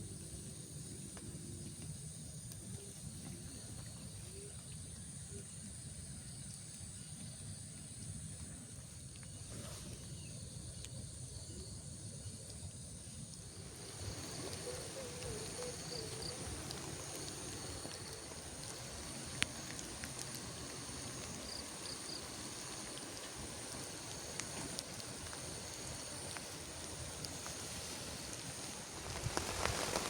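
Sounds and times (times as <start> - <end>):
insects buzzing: 0.0 - 30.0
rain falling on forest: 12.5 - 30.0.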